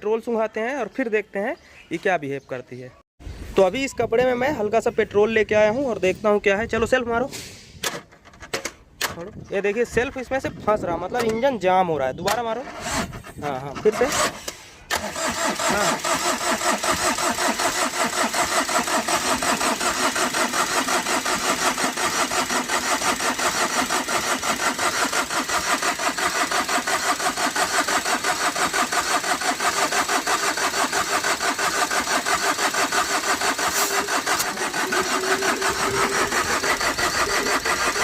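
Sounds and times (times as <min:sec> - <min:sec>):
starter motor cranking engine: 0:12.2 - 0:38.0.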